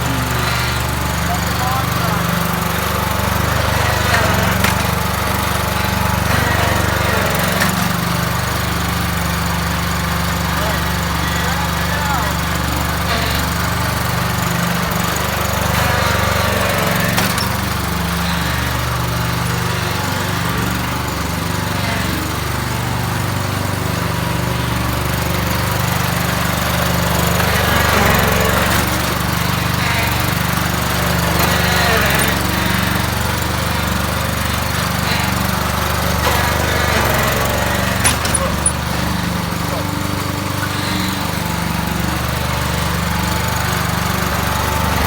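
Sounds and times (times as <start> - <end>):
lawn tractor engine running: 0.0 - 45.0.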